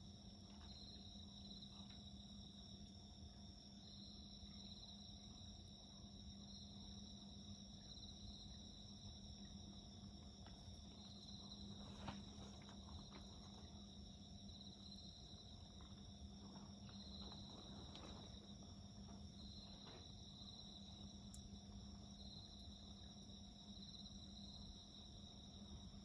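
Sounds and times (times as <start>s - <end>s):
insects chirping: 0.0s - 26.0s
low steady hum: 0.0s - 26.0s
wood fire crackling: 10.0s - 23.0s.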